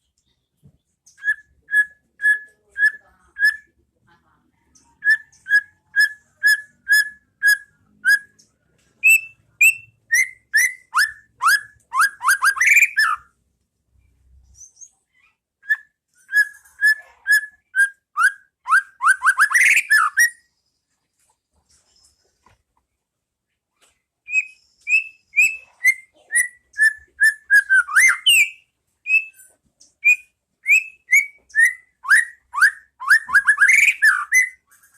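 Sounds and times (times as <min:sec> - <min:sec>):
bird singing whistled notes: 0:01.1 - 0:03.7, 0:05.0 - 0:13.3, 0:15.6 - 0:20.5, 0:24.3 - 0:34.9.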